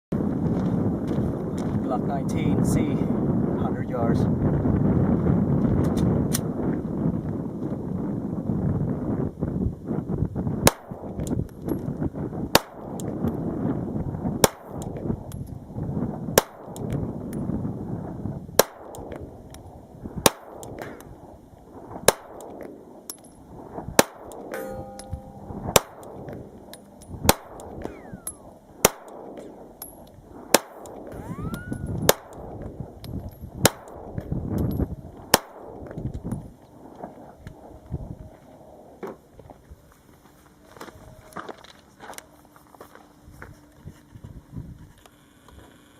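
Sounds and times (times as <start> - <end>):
wind noise on microphone: 0.1 - 42.1, 43.2 - 45.9
pistol shots: 12.5 - 13.0, 18.6 - 19.2, 22.0 - 22.7, 24.0 - 29.7, 30.5 - 32.6, 33.6 - 34.2.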